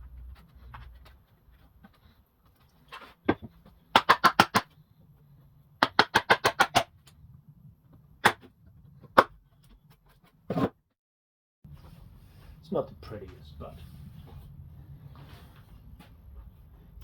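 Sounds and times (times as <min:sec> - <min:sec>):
sharp wooden knocks: 0:03.3 - 0:04.7, 0:05.8 - 0:06.9.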